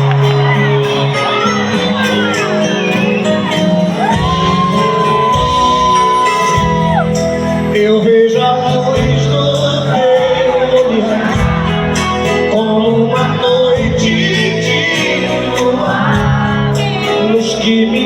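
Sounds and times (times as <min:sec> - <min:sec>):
live band music: 0:00.0 - 0:18.0
person singing: 0:00.0 - 0:18.0
people shouting: 0:00.7 - 0:07.3.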